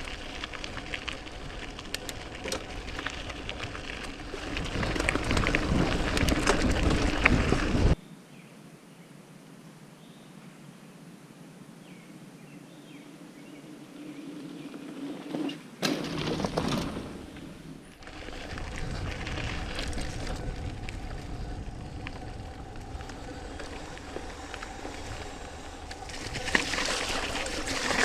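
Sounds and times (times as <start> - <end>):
bike tyres on dirt: 0.0 - 8.0, 12.7 - 28.0
wind rushing on microphone: 0.0 - 8.0, 18.0 - 28.0.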